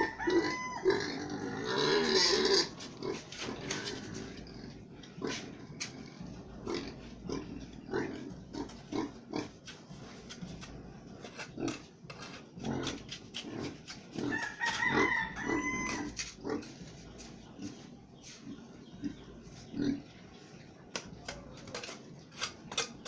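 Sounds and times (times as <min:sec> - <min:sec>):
rooster crowing: 0:00.0 - 0:01.6, 0:14.2 - 0:16.3
pigs grunting: 0:00.0 - 0:23.0
knocks and scrapes: 0:02.0 - 0:23.0.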